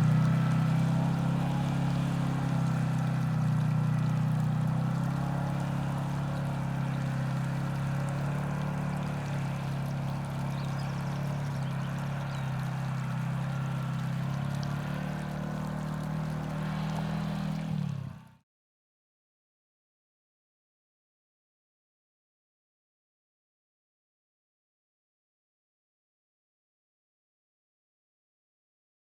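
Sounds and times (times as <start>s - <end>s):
vehicle engine droning: 0.0s - 18.4s.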